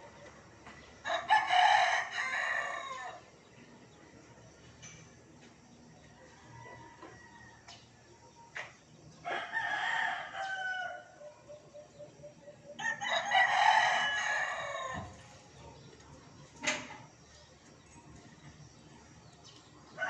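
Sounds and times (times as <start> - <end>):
rooster crowing: 1.0 - 3.3, 6.2 - 7.7, 9.2 - 11.3, 12.6 - 15.3.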